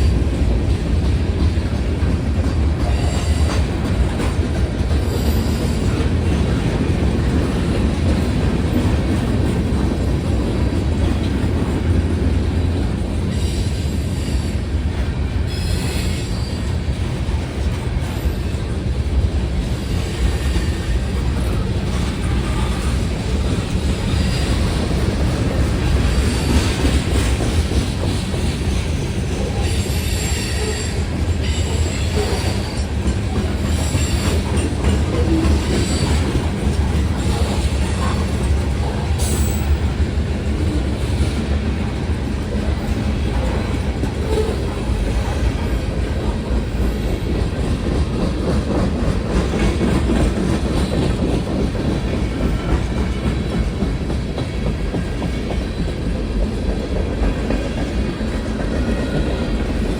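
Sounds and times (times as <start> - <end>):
train wheels clacking over rails: 0.0 - 59.9
high wheel squeal: 29.4 - 32.8.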